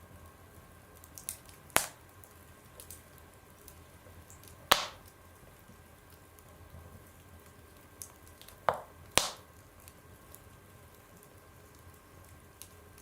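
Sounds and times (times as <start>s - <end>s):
wood fire crackling: 0.0s - 13.0s
sharp loud pops: 4.7s - 5.0s, 8.7s - 9.4s.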